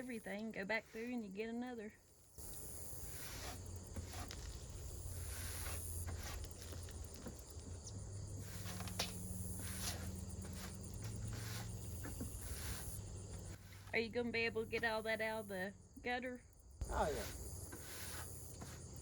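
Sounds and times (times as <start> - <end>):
insects chirping: 0.0 - 19.0
short knocks and scrapes: 3.0 - 13.9, 16.9 - 19.0.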